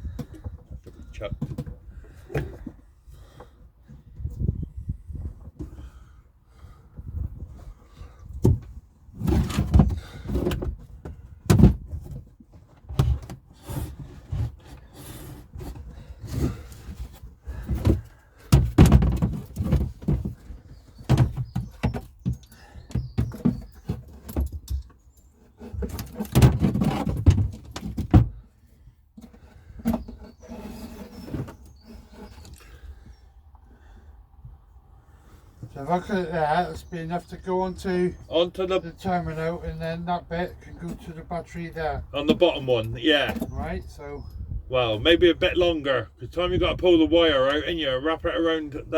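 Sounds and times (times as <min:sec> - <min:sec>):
clattering and bumping: 0:08.4 - 0:25.0, 0:25.6 - 0:28.4.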